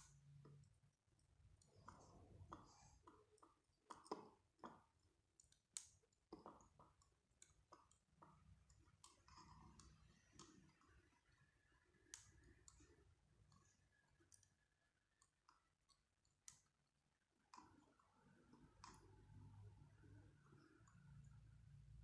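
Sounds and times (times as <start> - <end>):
faint small clicks: 0.0 - 11.4, 12.0 - 16.8.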